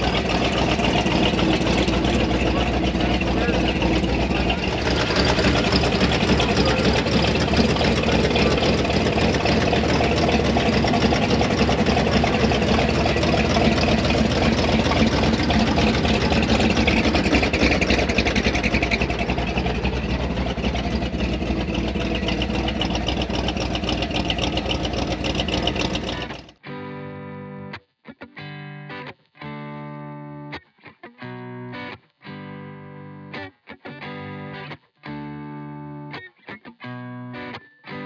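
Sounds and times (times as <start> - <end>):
truck engine idling: 0.0 - 26.6.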